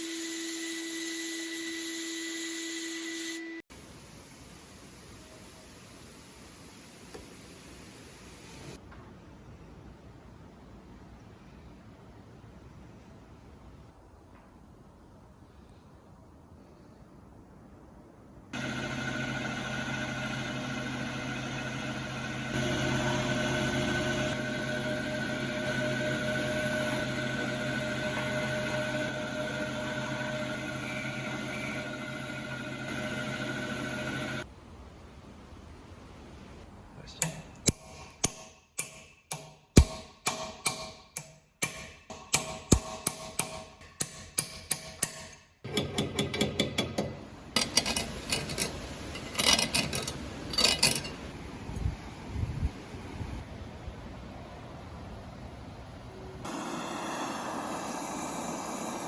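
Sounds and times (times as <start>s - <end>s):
motor humming and whining: 18.6s - 34.4s
small clatters and scraping: 47.5s - 51.3s.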